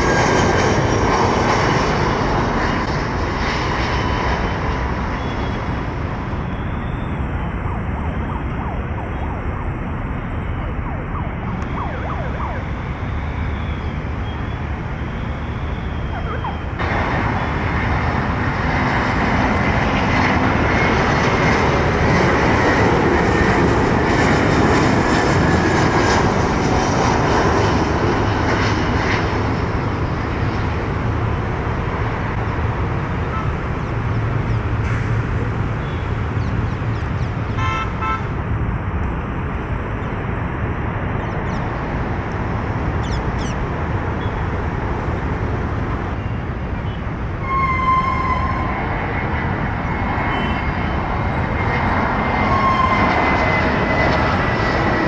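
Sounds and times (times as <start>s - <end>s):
jet engines roaring: 0.0s - 55.0s
traffic noise: 0.0s - 55.0s
vehicle horn toot: 37.6s - 38.3s, 47.4s - 48.7s.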